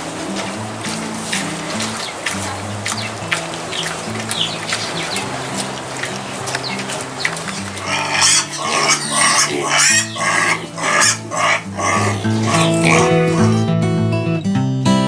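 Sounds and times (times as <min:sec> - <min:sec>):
background music: 0:00.0 - 0:15.0
short rough animal calls: 0:01.9 - 0:13.6.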